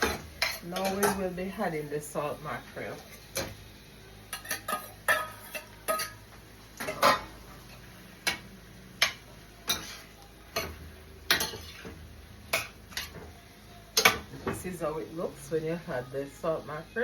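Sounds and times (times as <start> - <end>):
metal spoon clinking against pot: 0.0 - 1.3, 4.3 - 6.2.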